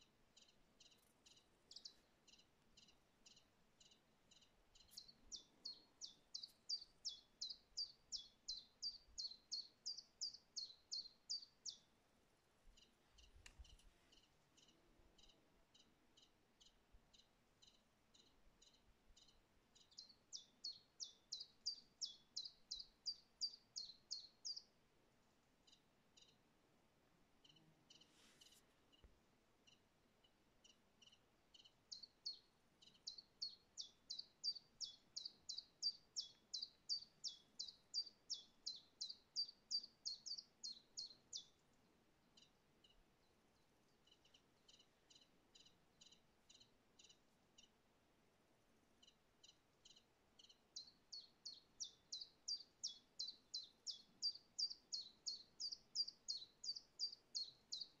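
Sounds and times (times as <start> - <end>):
songbird singing: 0.0 - 26.6, 27.3 - 47.9, 48.6 - 58.0.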